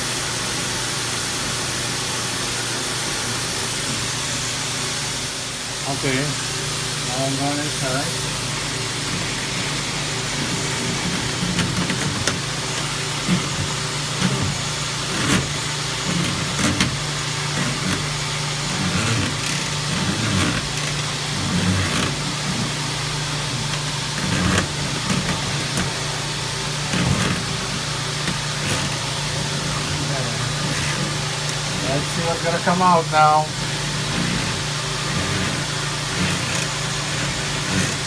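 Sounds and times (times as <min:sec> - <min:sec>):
vacuum motor hum and hiss: 0:00.0 - 0:38.0
brush knocks and rattles in duct: 0:09.2 - 0:26.2, 0:26.8 - 0:32.8, 0:33.6 - 0:38.0.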